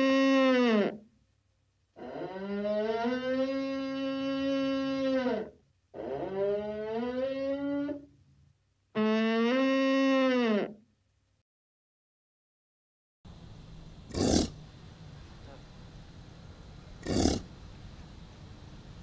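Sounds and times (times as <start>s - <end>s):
moose calling: 17.0s - 17.5s.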